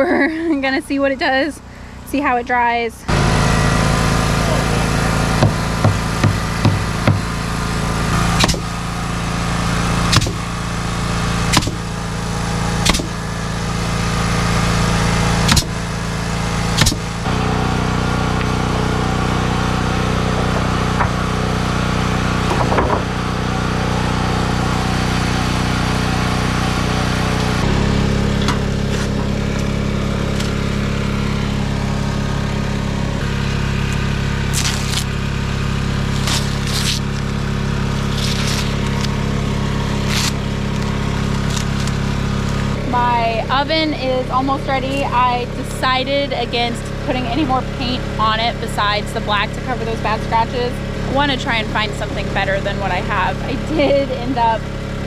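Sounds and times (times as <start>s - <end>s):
small engine running: 0.0s - 55.0s
sharp hammer-like strikes: 8.4s - 8.8s, 10.1s - 10.5s, 11.5s - 11.9s, 12.8s - 13.2s, 15.5s - 15.8s, 16.8s - 17.2s.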